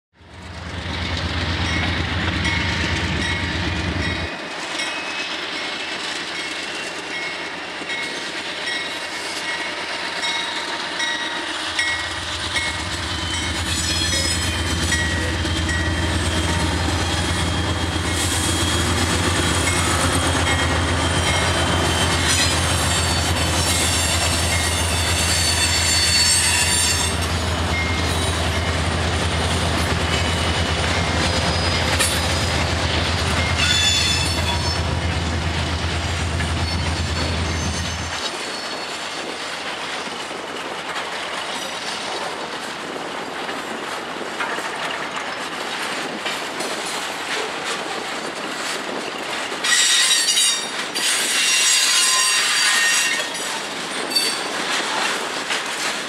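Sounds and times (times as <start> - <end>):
locomotive engine drone: 11.6 - 25.8
wheels squealing: 12.8 - 28.7.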